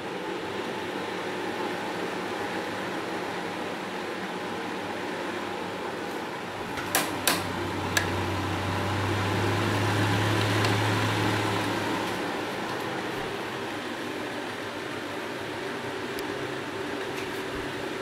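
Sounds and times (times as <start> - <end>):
electric fan whooshing: 0.0 - 18.0
low motor hum: 6.5 - 14.3.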